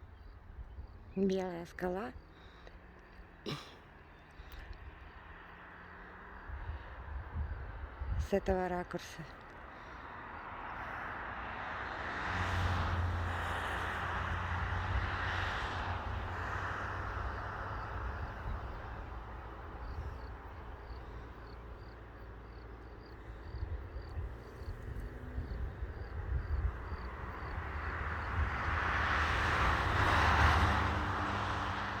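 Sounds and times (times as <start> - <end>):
wind rumbling on microphone: 6.4 - 8.6, 12.4 - 32.0.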